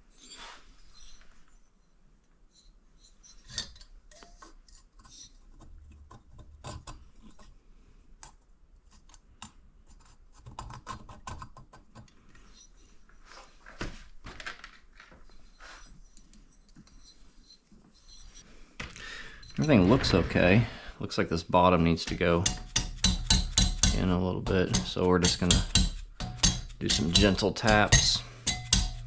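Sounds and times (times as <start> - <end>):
metallic clicks and scrapes: 2.5 - 7.6, 8.2 - 12.9, 19.3 - 21.0, 21.8 - 29.0.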